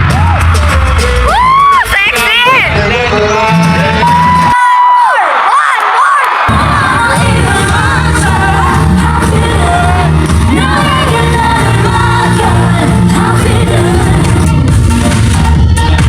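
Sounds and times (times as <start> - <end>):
person singing: 6.5 - 16.0
steady bass beat: 6.5 - 16.0.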